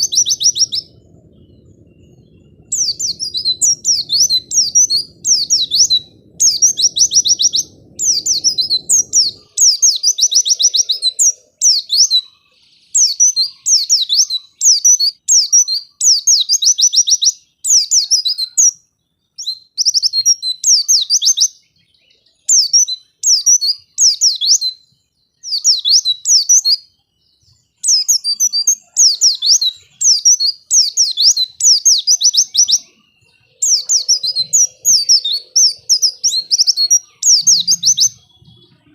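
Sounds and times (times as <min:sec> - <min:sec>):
low rumble: 0:00.0 - 0:09.9
bird singing trills: 0:00.0 - 0:38.9.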